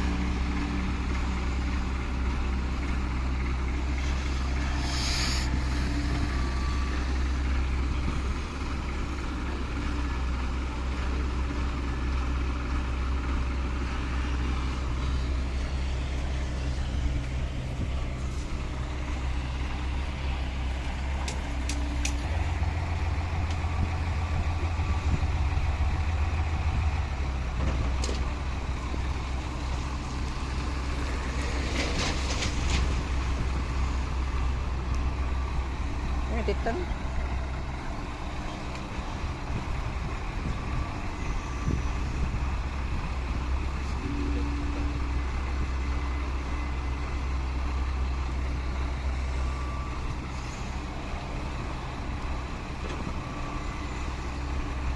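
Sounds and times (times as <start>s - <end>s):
truck diesel engine running: 0.0s - 54.9s
short hiss: 4.8s - 5.9s.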